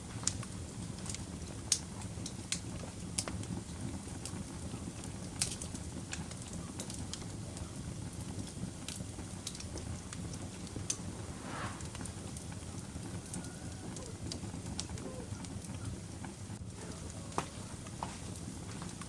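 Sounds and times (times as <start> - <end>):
low rumble of flames: 6.8 - 19.0
wood fire crackling: 8.9 - 12.3
fire popping and snapping: 10.2 - 12.2.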